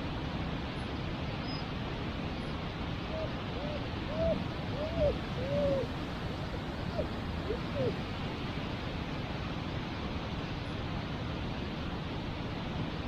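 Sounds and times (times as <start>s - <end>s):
dog whimpering: 3.1s - 8.0s.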